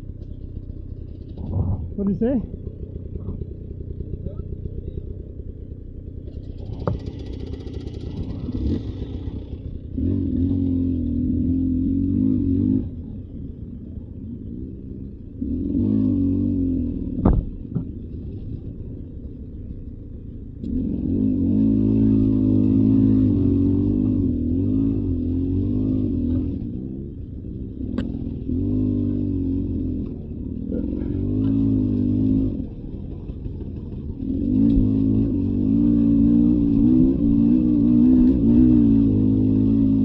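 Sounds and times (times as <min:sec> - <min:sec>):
dirt bike engine revving: 0:06.6 - 0:13.0, 0:14.5 - 0:18.6, 0:20.6 - 0:40.0.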